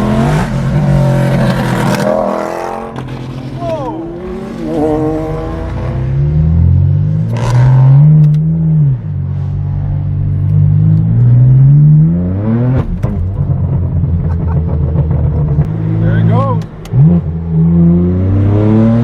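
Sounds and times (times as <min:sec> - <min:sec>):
car engine accelerating: 0:00.0 - 0:19.0
exhaust cracks: 0:12.6 - 0:17.5.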